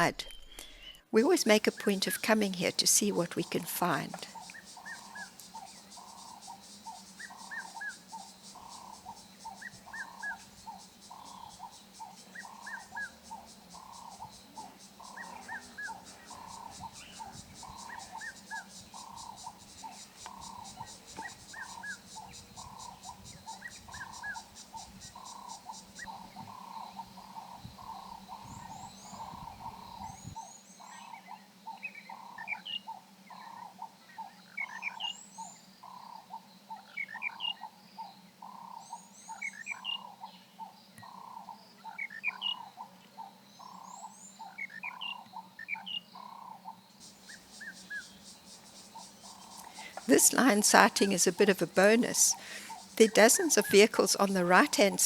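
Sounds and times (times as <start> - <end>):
birds chirping: 0.0 - 33.6, 38.4 - 55.0
rhythmic low animal calls: 1.2 - 30.5, 46.2 - 55.0
pulsing insect trill: 1.2 - 40.3, 41.0 - 55.0.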